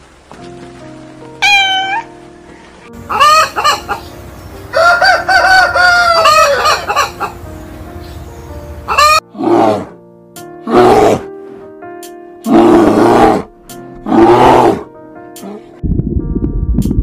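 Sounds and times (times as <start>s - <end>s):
background music: 0.1s - 17.0s
rooster clucking: 3.1s - 4.1s, 5.2s - 7.4s, 8.9s - 9.2s
rooster crowing: 4.7s - 7.2s
rough roar-like calls: 8.9s - 10.0s, 10.6s - 11.3s, 12.5s - 14.9s.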